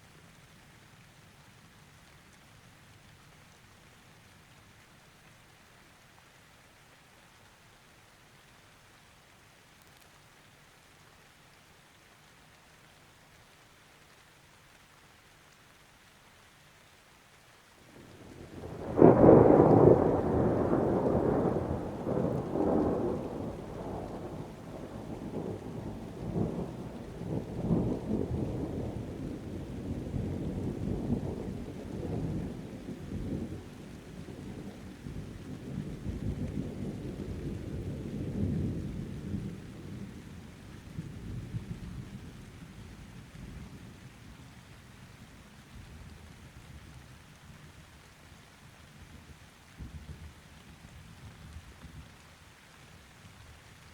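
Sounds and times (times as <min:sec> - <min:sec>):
light steady rain: 0:00.0 - 0:53.9
thunder clap and rumble: 0:18.0 - 0:42.3.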